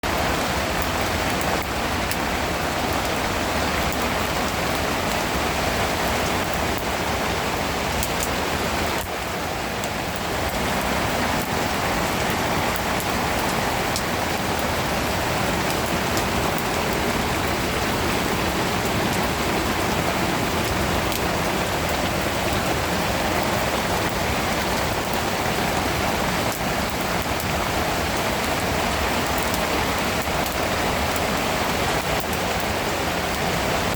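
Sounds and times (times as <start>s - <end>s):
heavy rain hissing: 0.0s - 33.9s
raindrops ticking: 0.1s - 33.9s.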